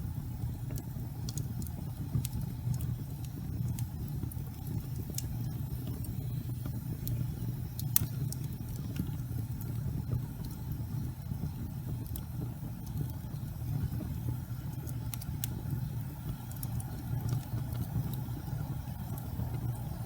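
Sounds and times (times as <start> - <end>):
fire crackling and popping: 0.0 - 20.0
low rumble of flame: 0.0 - 20.0.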